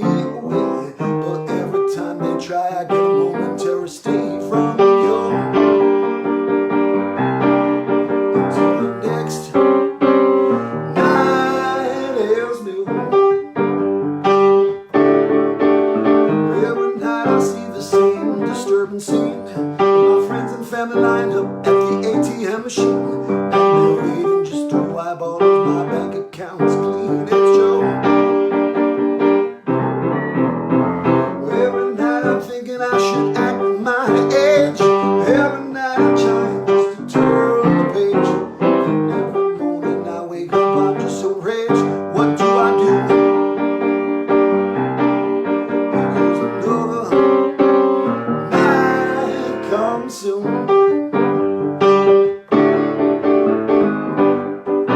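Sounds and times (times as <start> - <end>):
solo piano playing: 0.0 - 54.9.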